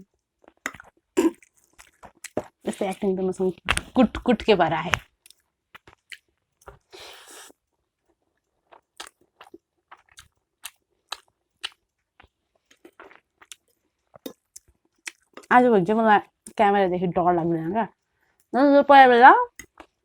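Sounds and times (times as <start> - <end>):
person chewing noodles: 0.1 - 3.1, 5.2 - 15.5.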